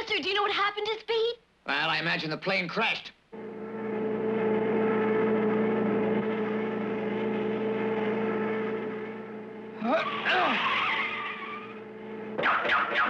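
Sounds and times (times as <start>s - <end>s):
cartoon race car engine hum: 3.4s - 13.0s.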